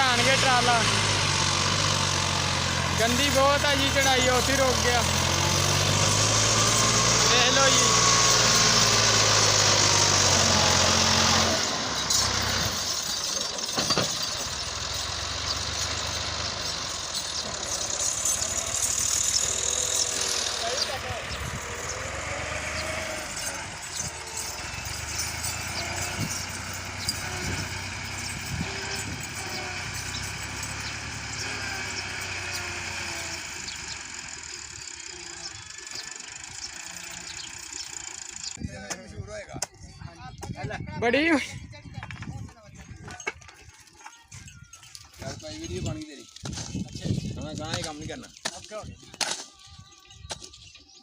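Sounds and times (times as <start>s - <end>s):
tractor diesel engine running: 0.0s - 38.7s.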